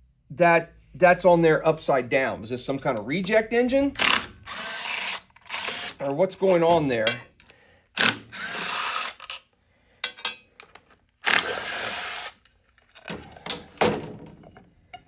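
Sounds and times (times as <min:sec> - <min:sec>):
power driver running: 0:03.9 - 0:07.2, 0:08.0 - 0:09.2, 0:11.3 - 0:12.3.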